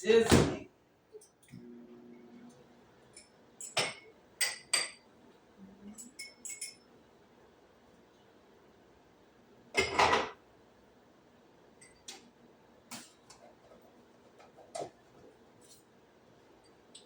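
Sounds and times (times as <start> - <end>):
loud kitchen clatter: 9.8 - 10.4.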